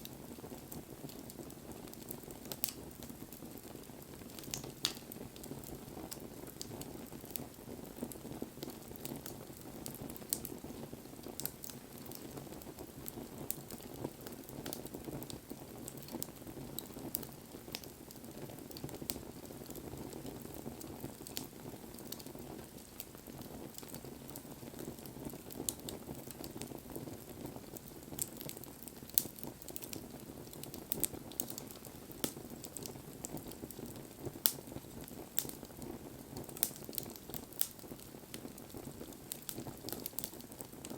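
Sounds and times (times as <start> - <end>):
wood crackling and popping: 0.0 - 40.9.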